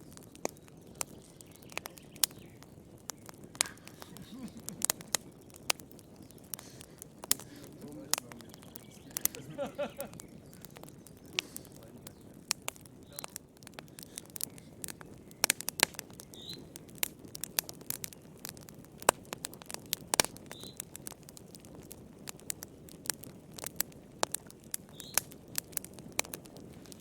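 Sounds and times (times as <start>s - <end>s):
bird chirping: 0.0s - 16.7s, 20.5s - 20.8s, 24.9s - 25.2s
wood fire crackling: 0.0s - 27.0s.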